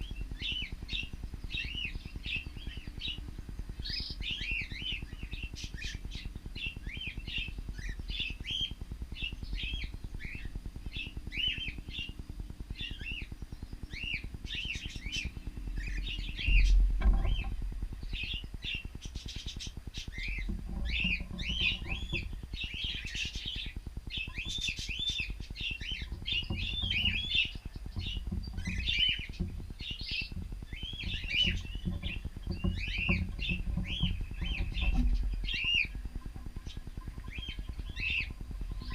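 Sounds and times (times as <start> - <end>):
low rumble: 14.3 - 19.0, 19.7 - 38.9
cockatiels chirping: 18.1 - 38.9.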